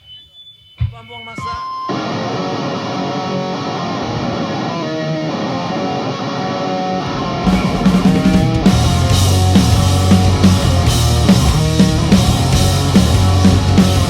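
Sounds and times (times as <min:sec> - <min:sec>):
drums: 0:00.0 - 0:14.0
electric guitar riff: 0:01.9 - 0:14.0
bass guitar: 0:05.4 - 0:14.0.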